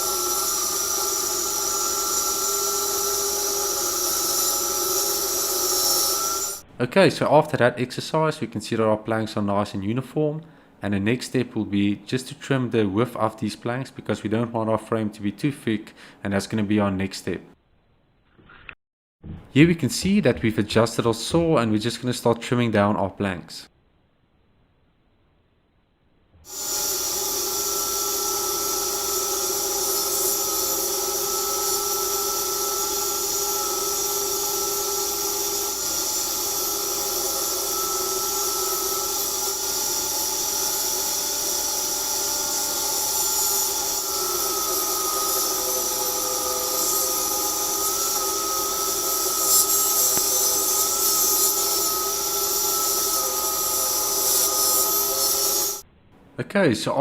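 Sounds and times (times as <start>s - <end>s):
table saw ripping wood: 0.0s - 6.6s, 26.5s - 55.8s.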